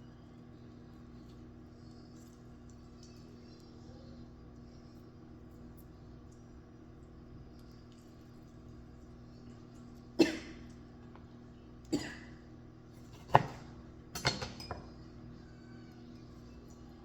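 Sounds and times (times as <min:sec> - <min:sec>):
faint steady hum: 0:00.0 - 0:17.0
dishes and utensils clinking: 0:13.0 - 0:15.0.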